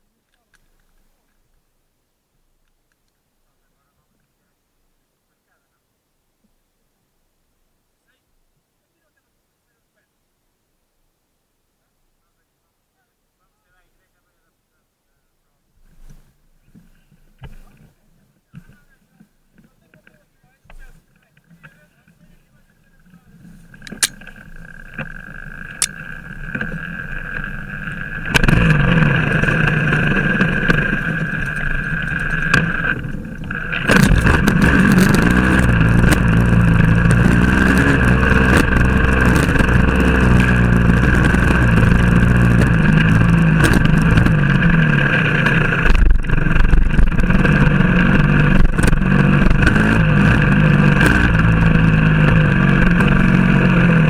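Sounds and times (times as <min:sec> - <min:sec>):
motorcycle engine running: 0:23.4 - 0:54.0.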